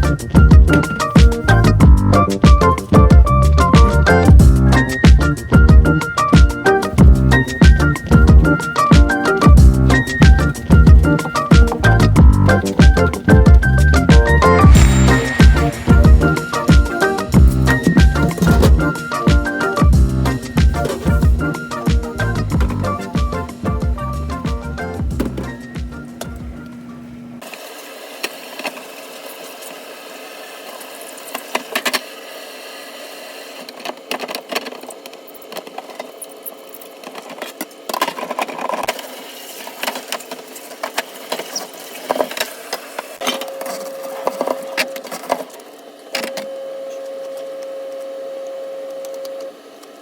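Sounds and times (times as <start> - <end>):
steady tone: 12.0 - 21.5
clatter of parts being scrubbed: 36.9 - 46.4.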